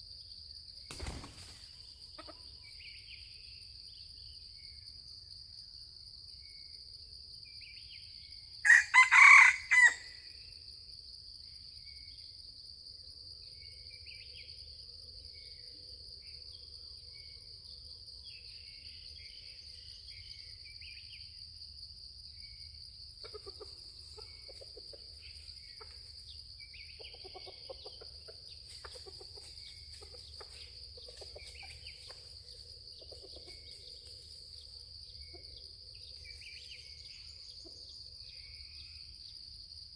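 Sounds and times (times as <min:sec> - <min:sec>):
insects droning: 0:00.0 - 0:39.9
rooster crowing: 0:08.6 - 0:10.2.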